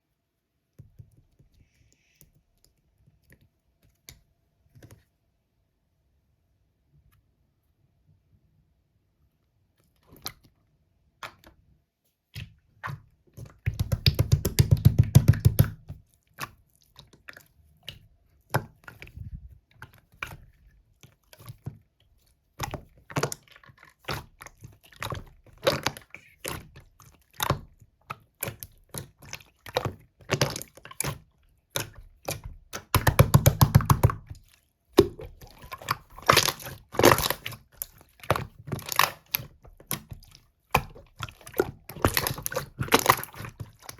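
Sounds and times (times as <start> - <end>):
slime crackling and popping: 31.8 - 34.4, 35.0 - 43.9.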